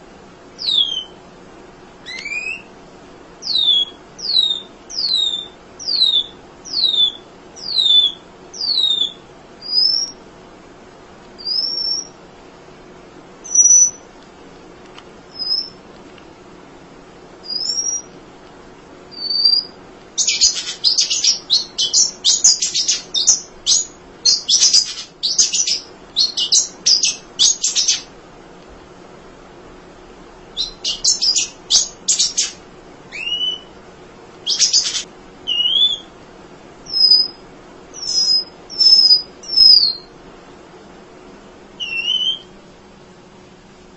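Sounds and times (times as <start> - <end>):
bird high falling whistles: 0.6 - 1.2, 2.0 - 2.7, 3.4 - 10.2, 11.4 - 12.2, 17.5 - 18.1, 19.1 - 28.0, 30.6 - 33.7, 34.5 - 36.1, 36.9 - 37.4, 38.0 - 40.1, 41.8 - 42.5
bird rising whistles: 0.6 - 1.2, 2.0 - 2.7, 3.4 - 10.2, 11.4 - 12.2, 15.4 - 15.8, 17.5 - 18.1, 19.1 - 28.1, 30.6 - 33.7, 34.4 - 36.1, 36.9 - 37.4, 38.0 - 40.1, 41.8 - 42.5
bird twittering chatter: 0.6 - 1.2, 2.0 - 2.7, 3.4 - 10.2, 11.4 - 12.1, 15.4 - 15.8, 17.5 - 18.1, 19.2 - 28.1, 30.6 - 33.7, 34.4 - 36.1, 36.9 - 37.4, 38.0 - 40.1, 41.8 - 42.5.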